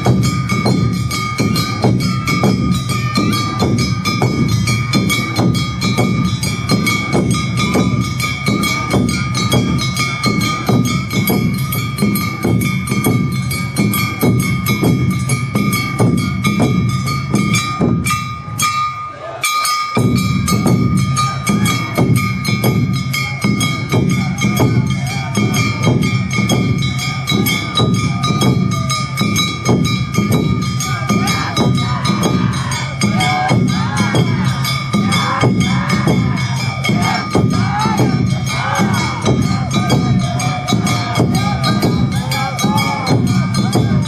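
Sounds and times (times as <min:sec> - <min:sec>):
clanging gong: 0:00.0 - 0:44.0
drums: 0:00.0 - 0:44.0.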